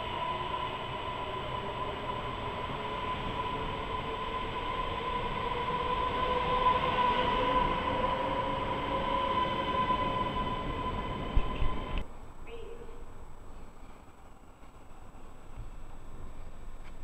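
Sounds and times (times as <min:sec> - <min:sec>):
electric train running with whine: 0:00.0 - 0:12.0.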